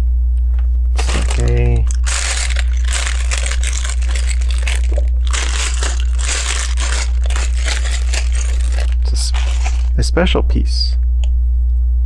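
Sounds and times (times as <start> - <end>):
plastic bags crinkling: 1.0 - 10.0.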